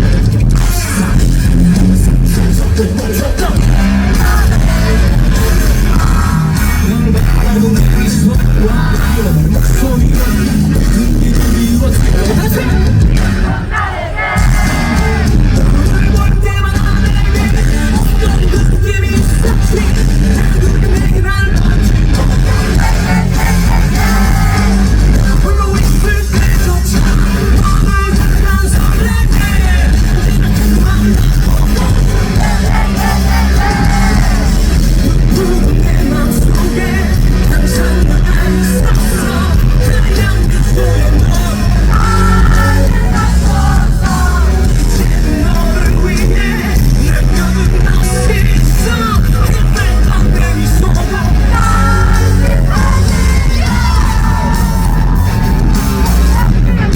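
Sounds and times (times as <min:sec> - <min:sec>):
rock band playing live: 0:00.0 - 0:56.9
crowd cheering: 0:03.1 - 0:07.0, 0:12.5 - 0:15.7, 0:22.3 - 0:25.4, 0:29.3 - 0:35.7, 0:41.2 - 0:46.8, 0:50.6 - 0:56.9
yells: 0:13.4 - 0:15.4, 0:22.5 - 0:25.1, 0:32.2 - 0:34.8, 0:51.6 - 0:56.9.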